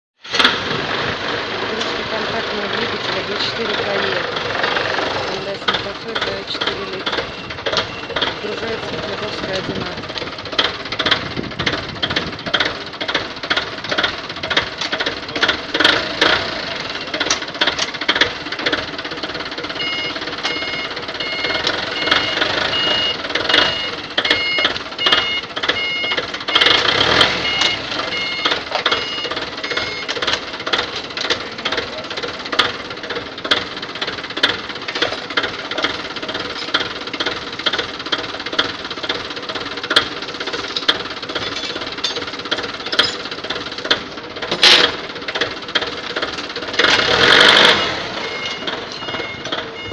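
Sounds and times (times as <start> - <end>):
engine knocking clatter: 0.2 - 49.9
electronic beeping: 5.6 - 9.3, 19.8 - 30.2, 47.6 - 49.9.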